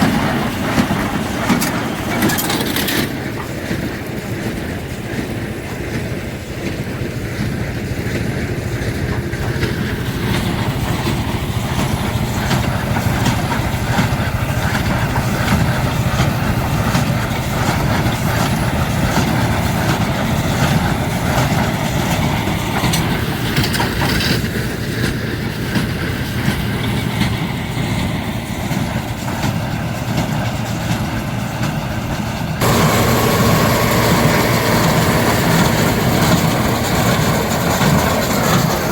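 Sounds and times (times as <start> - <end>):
baler mechanical clatter: 0.0 - 5.3, 32.6 - 38.9
tractor diesel engine running: 0.0 - 38.9.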